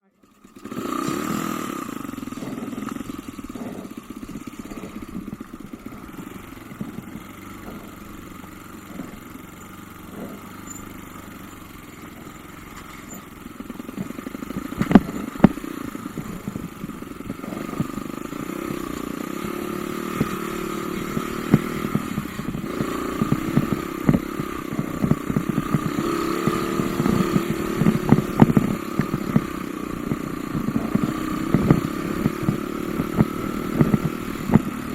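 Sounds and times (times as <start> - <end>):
motorcycle engine revving: 0.0 - 34.9
clattering knocks from bumps: 13.9 - 15.6.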